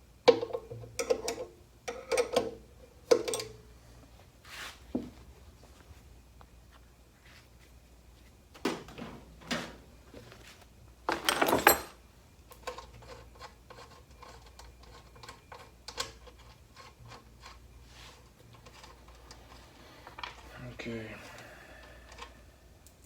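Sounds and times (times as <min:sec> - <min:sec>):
metal parts rattling clatter: 0:11.1 - 0:12.0.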